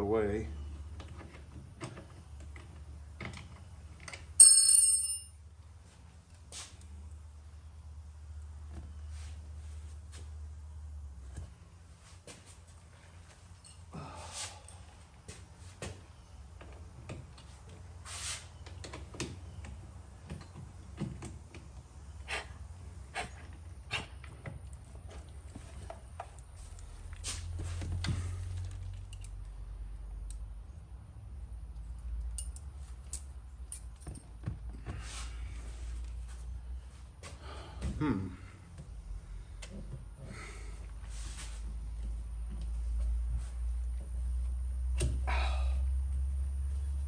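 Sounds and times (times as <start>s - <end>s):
steady low hum: 0.0s - 47.0s
ringing metal clink: 4.4s - 5.4s.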